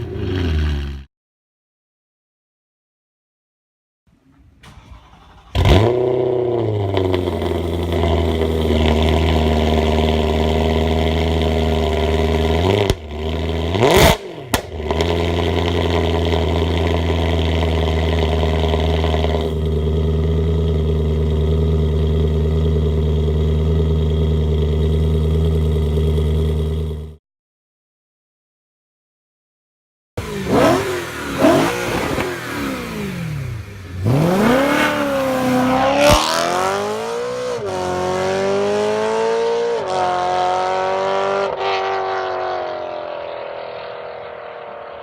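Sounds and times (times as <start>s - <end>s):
car engine starting and idling: 4.1s - 27.2s, 30.2s - 39.1s.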